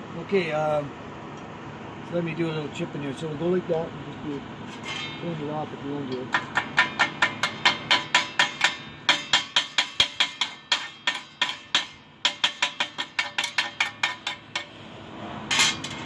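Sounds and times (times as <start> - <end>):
chipping hammer tapping metal: 6.1 - 14.8.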